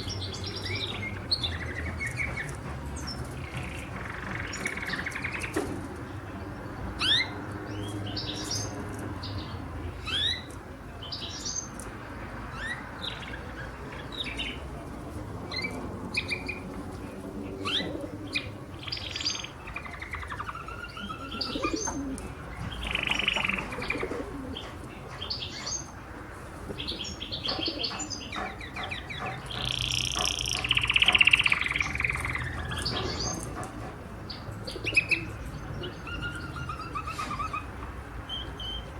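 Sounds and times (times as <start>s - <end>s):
canary singing: 17.6s - 24.6s, 26.9s - 33.6s.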